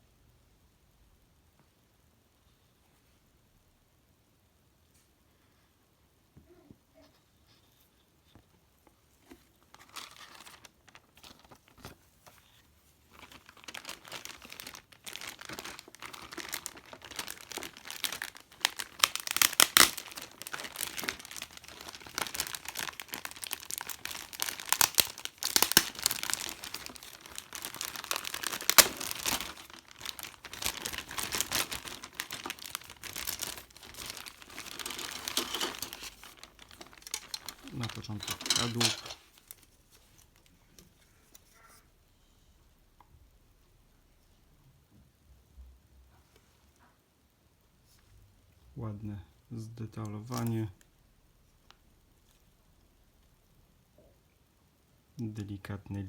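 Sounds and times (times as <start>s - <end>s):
plastic packaging crinkling: 9.3s - 40.5s, 50.1s - 50.7s.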